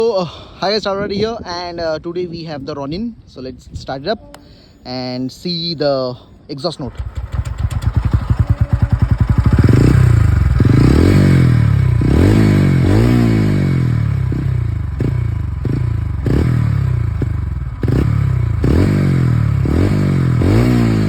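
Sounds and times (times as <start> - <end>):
motorcycle engine revving: 6.9 - 21.0.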